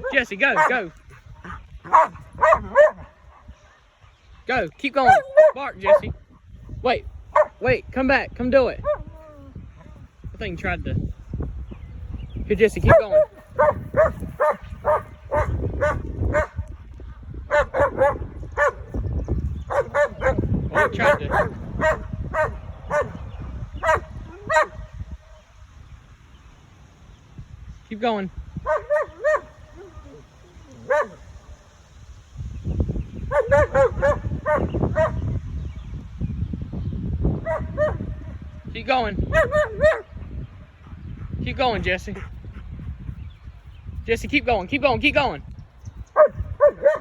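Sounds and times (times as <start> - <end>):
dog barking: 0.0 - 3.8, 5.1 - 6.2, 7.3 - 7.6, 8.8 - 9.1, 12.8 - 16.6, 17.5 - 18.9, 19.7 - 23.2, 23.8 - 24.8, 28.6 - 30.1, 30.9 - 31.2, 33.3 - 35.3, 37.4 - 38.1, 39.3 - 40.1, 46.2 - 47.0.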